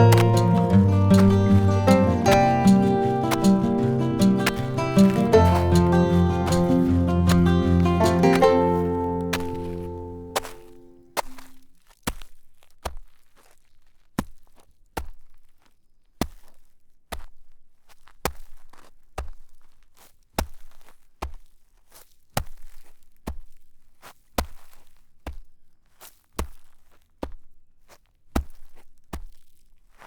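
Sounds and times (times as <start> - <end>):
footsteps in snow: 0.0 - 11.6.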